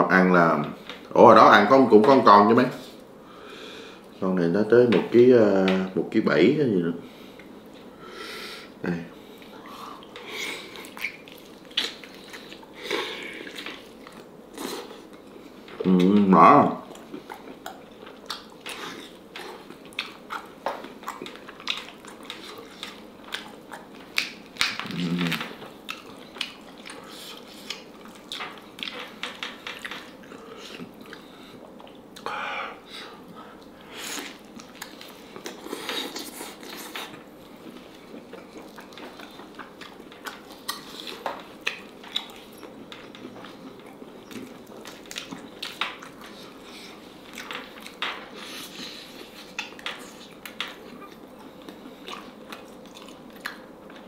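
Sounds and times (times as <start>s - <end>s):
wet chewing and biting: 9.5s - 15.2s, 16.9s - 32.3s, 33.6s - 54.0s.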